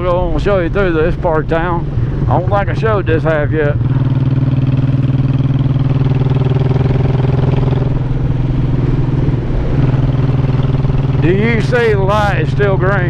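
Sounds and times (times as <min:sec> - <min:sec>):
motorcycle engine running steadily: 0:00.0 - 0:13.0.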